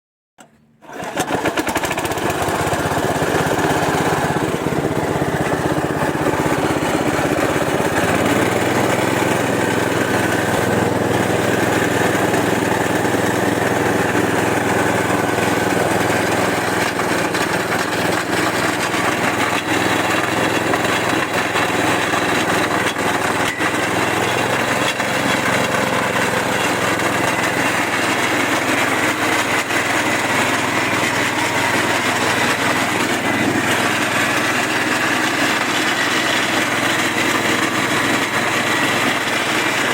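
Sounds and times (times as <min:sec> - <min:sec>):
pulping machine running: 0:00.8 - 0:39.9.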